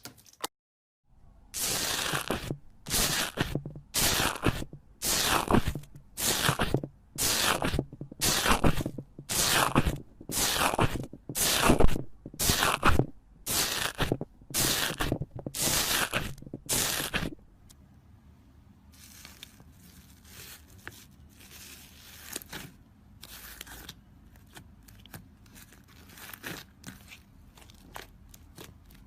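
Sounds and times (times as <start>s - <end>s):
slime crunching and crackling: 1.6s - 17.4s.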